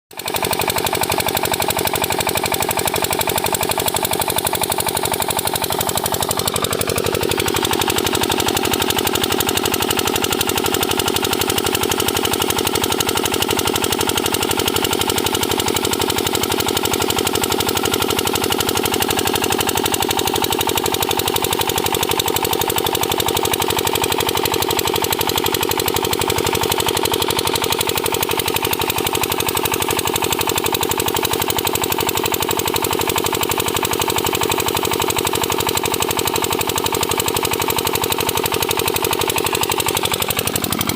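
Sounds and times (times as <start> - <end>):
diesel engine knocking: 0.1 - 40.9.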